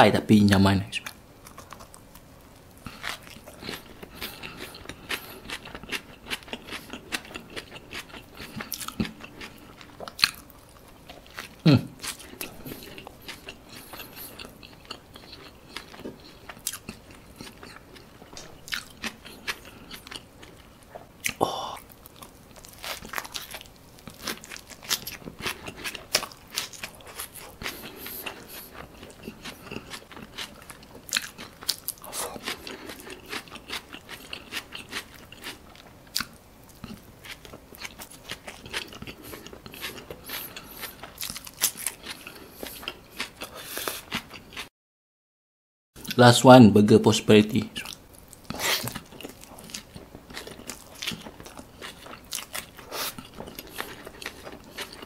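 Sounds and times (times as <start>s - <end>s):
food crunching: 1.0s - 44.7s, 47.8s - 55.0s
biting and chewing: 1.4s - 44.7s, 47.8s - 55.0s.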